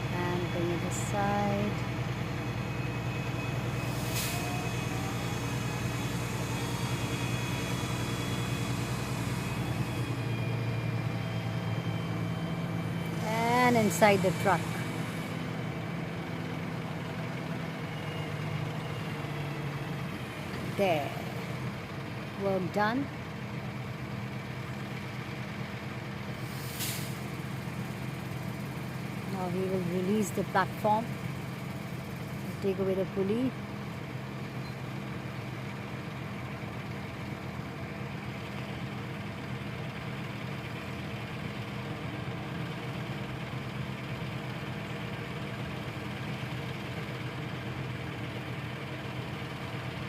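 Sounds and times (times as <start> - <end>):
truck engine running steadily: 0.0 - 50.0
brief hiss: 26.4 - 27.2.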